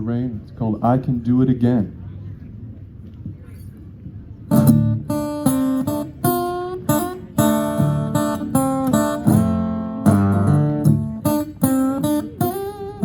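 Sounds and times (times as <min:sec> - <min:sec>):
acoustic guitar strumming chords: 0:04.5 - 0:13.0.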